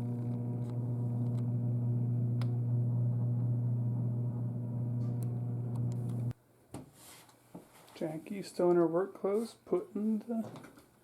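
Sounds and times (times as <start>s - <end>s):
steady low hum: 0.0s - 6.3s
faint clicks: 5.0s - 6.3s.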